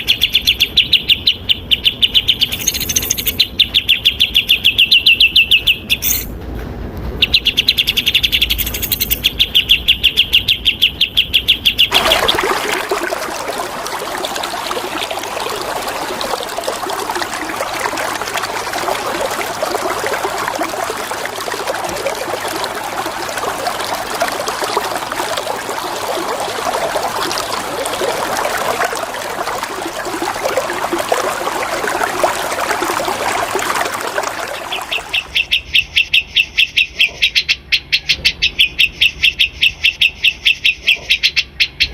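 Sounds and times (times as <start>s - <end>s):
bird chattering song: 0.0s - 6.3s, 7.2s - 11.9s, 34.6s - 41.9s
water flowing: 2.5s - 3.4s, 11.9s - 35.5s.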